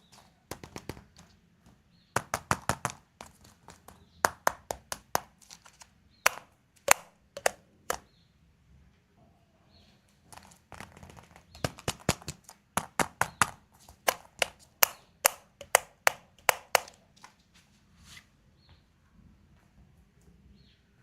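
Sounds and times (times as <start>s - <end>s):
plastic egg clicking and tapping: 0.0s - 8.0s, 10.3s - 17.4s
faint packaging rustling: 5.3s - 6.2s, 10.1s - 15.0s.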